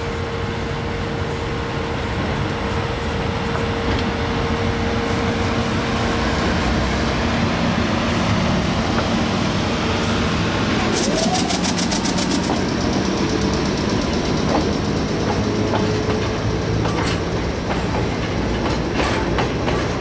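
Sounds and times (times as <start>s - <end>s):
electric locomotive rumble: 0.0s - 20.0s
locomotive hum: 10.6s - 18.8s.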